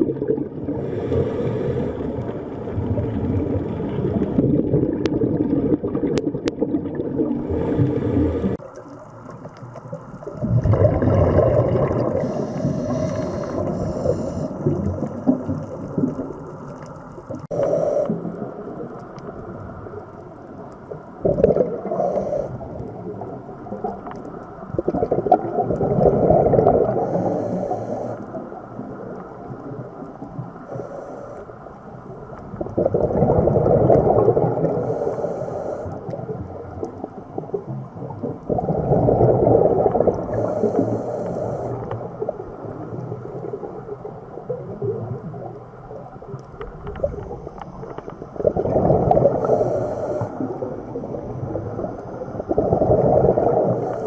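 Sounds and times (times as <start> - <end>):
underwater low wash with swells: 0.0 - 54.0
faint bubbly hiss: 9.8 - 16.6, 21.2 - 31.5, 47.0 - 54.0.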